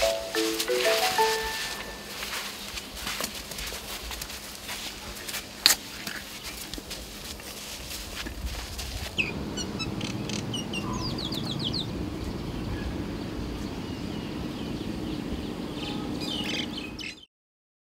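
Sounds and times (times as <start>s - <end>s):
birds chirping: 0.0s - 3.4s, 9.2s - 17.3s
low background noise: 0.0s - 17.2s.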